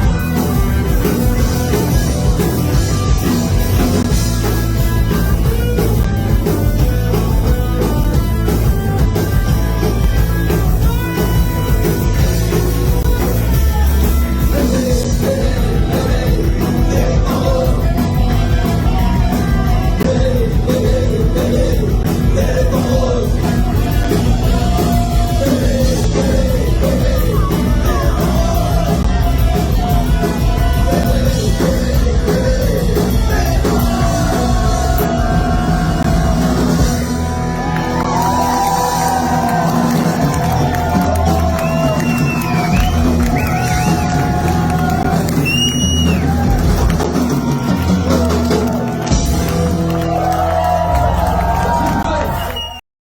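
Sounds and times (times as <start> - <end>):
live rock band playing: 0.0 - 52.8
person singing: 10.6 - 36.9.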